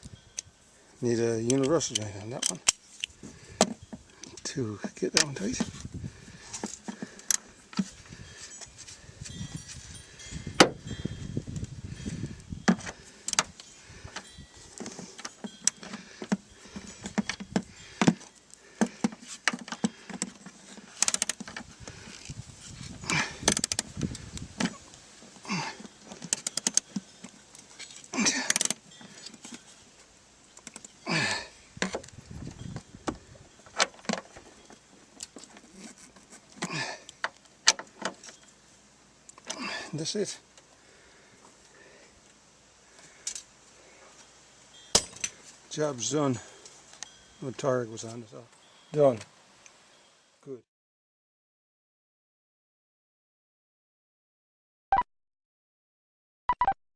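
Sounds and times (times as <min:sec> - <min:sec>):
metal tools clicking and clinking: 0:01.3 - 0:03.1, 0:12.7 - 0:21.7, 0:25.5 - 0:29.8, 0:30.6 - 0:32.1, 0:44.9 - 0:45.5.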